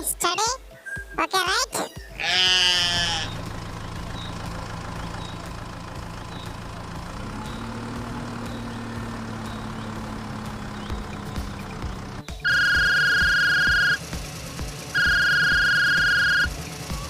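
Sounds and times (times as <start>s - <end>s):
sheep bleating: 2.1s - 3.4s
vehicle engine humming: 2.4s - 17.0s.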